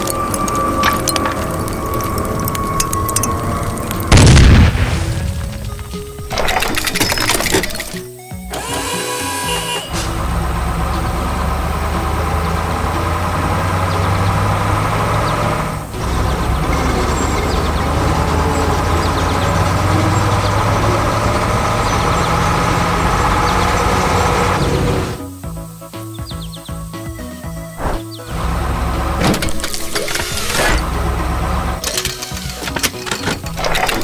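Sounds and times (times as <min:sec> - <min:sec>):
clattering and knocking: 0:00.0 - 0:04.2, 0:05.6 - 0:08.1, 0:31.8 - 0:34.0
heavy engine running: 0:00.0 - 0:25.3, 0:27.8 - 0:34.0.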